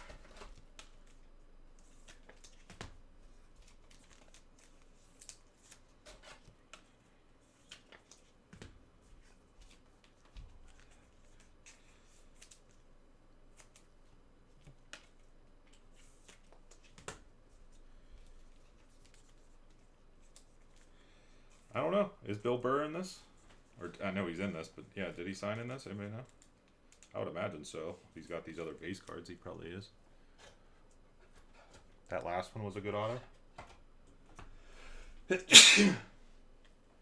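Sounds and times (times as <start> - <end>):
trading cards and packaging rustling: 0.0 - 21.7.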